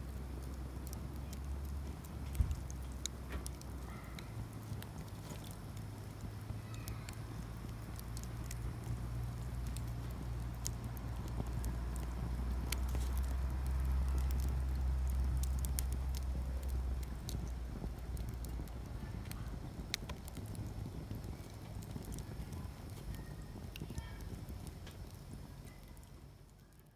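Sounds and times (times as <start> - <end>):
campfire crackling and popping: 0.0 - 26.9.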